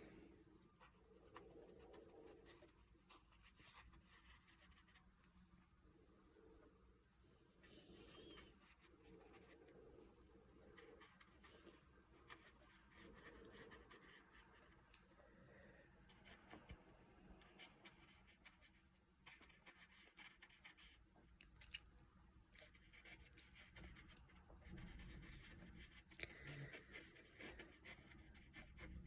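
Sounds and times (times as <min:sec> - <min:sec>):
paintbrush on paper: 0:00.8 - 0:05.1, 0:07.6 - 0:15.0, 0:17.4 - 0:21.0, 0:22.6 - 0:29.0.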